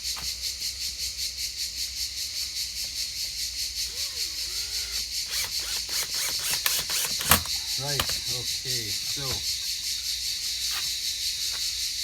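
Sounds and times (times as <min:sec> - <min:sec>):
insect chirping: 0:00.0 - 0:12.0
faint rising and falling calls: 0:03.8 - 0:09.4.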